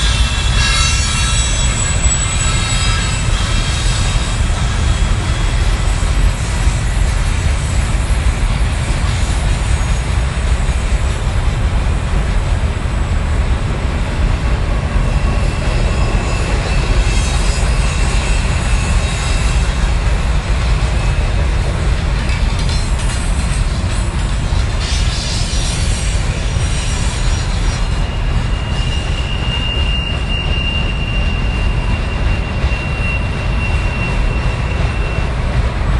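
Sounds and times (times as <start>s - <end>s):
high wheel squeal: 0.0s - 11.0s, 14.2s - 35.9s
freight train rumbling past: 0.0s - 35.9s.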